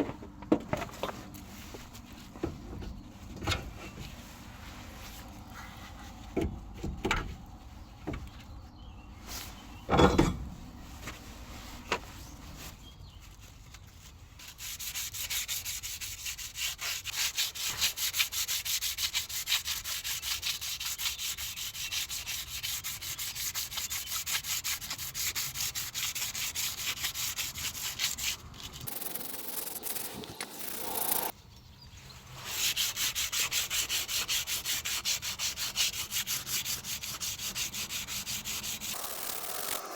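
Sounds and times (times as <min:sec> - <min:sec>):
abrasive scrubbing on metal: 0:14.4 - 0:31.3, 0:32.2 - 0:39.9.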